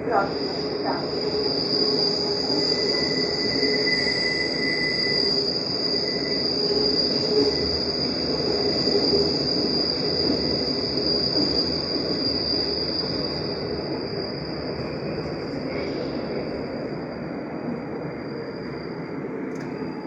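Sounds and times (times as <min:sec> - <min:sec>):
metro train rumbling: 0:00.0 - 0:20.0
high-pitched squeal: 0:00.1 - 0:20.0.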